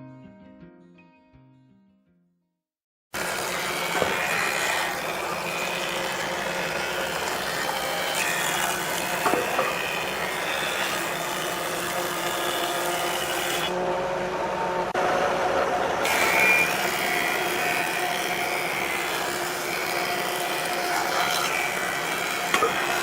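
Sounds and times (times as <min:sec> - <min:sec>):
power tool working wood: 0:03.2 - 0:23.0.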